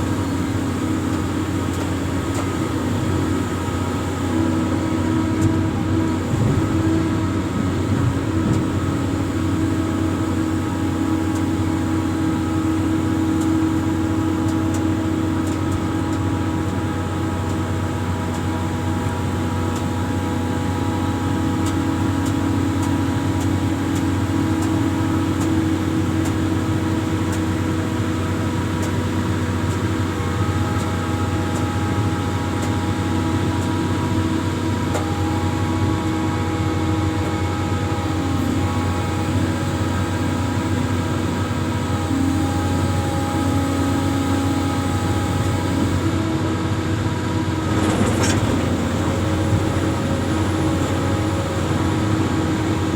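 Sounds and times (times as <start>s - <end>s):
diesel engine droning: 0.0s - 52.9s.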